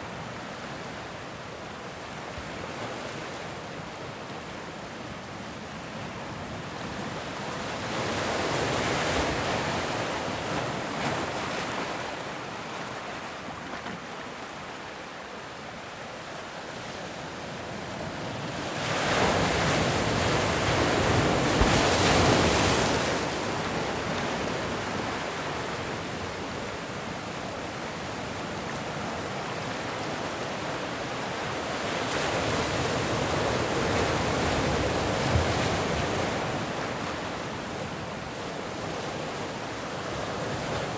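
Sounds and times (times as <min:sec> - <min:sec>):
waves breaking: 0:19.0 - 0:29.7.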